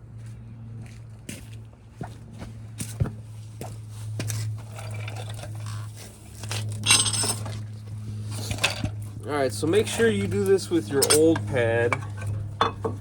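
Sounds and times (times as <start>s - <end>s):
low electrical hum: 0.0s - 13.0s
metal scraping rattle: 6.6s - 7.6s
metal tools clicking and knocking: 6.8s - 7.5s, 11.0s - 13.0s.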